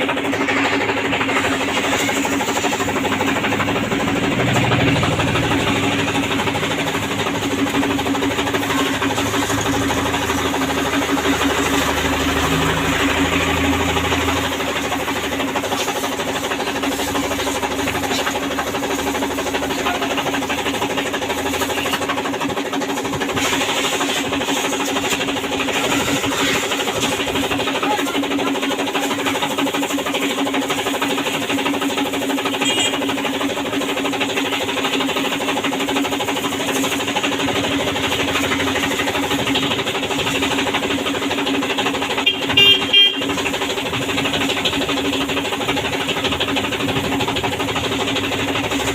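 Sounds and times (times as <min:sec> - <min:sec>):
washing machine humming: 0:00.0 - 0:48.9.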